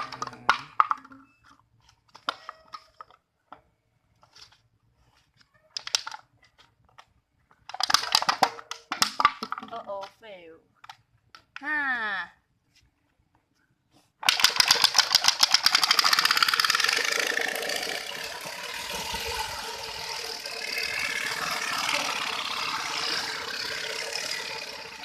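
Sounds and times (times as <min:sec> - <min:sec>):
bicycle spokes clattering: 0:14.2 - 0:25.0.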